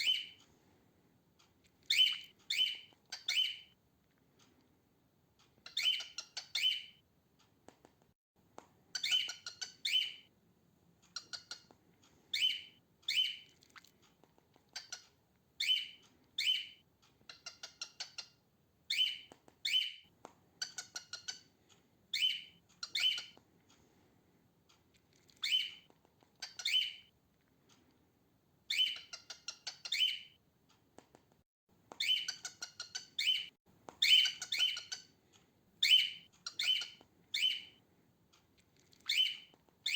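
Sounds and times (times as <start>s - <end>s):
cockatiel chirping calls: 0.0s - 0.4s, 1.9s - 3.8s, 5.6s - 7.0s, 8.9s - 10.3s, 11.1s - 11.7s, 12.3s - 13.5s, 14.7s - 21.5s, 22.1s - 23.4s, 25.3s - 27.1s, 28.7s - 30.4s, 32.0s - 35.2s, 35.8s - 37.8s, 38.9s - 39.9s.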